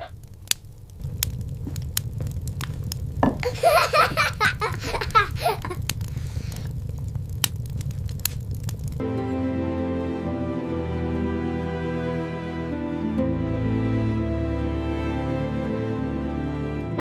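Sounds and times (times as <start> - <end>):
low rumble with crackles: 0.0 - 9.2
child laughing: 3.4 - 5.8
soft music: 9.0 - 17.0.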